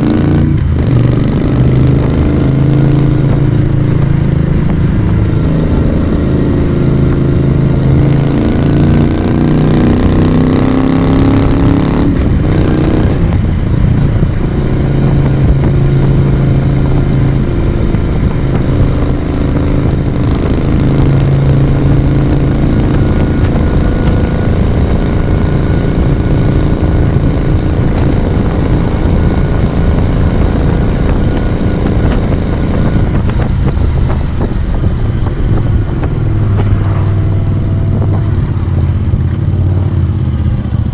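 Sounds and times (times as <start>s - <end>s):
motorcycle engine and exhaust: 0.0s - 40.9s.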